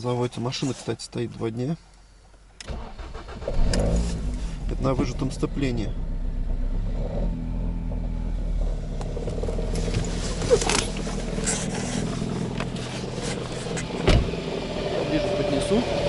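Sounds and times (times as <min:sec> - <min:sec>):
car engine idling: 0:02.4 - 0:16.0
sharp engine knocks: 0:13.8 - 0:14.4.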